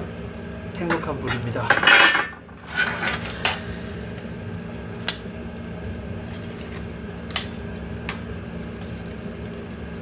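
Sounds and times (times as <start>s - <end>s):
boiler low hum: 0.0s - 10.0s
fire crackling and popping: 2.3s - 10.0s.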